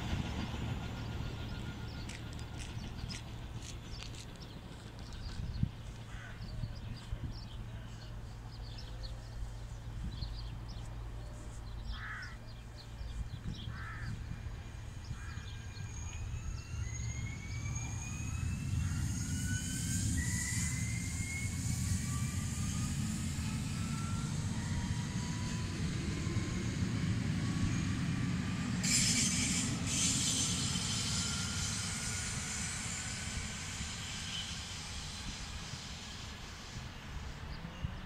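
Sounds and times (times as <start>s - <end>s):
train whine rising in pitch: 0.0s - 38.0s
wheels rumbling on rail: 0.0s - 38.0s
harsh bird calls: 11.8s - 13.0s.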